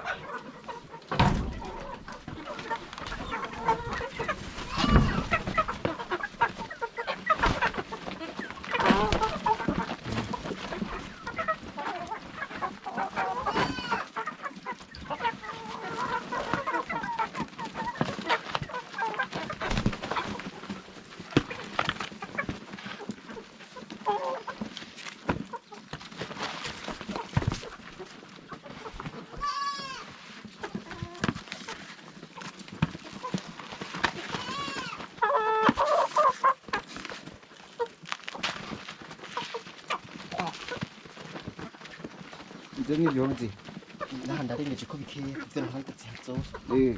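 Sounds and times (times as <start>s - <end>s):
high chicken calls: 0.0s - 20.8s, 29.0s - 31.9s, 34.0s - 36.9s
chickens clucking: 0.0s - 46.9s.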